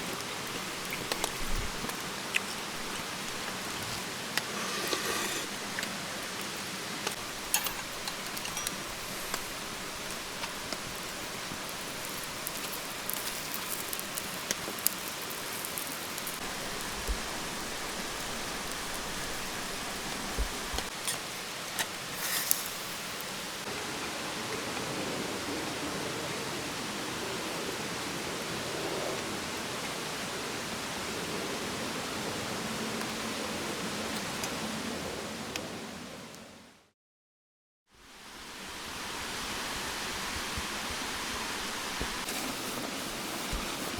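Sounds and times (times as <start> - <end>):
steady rain falling: 0.0 - 36.4, 38.0 - 43.9.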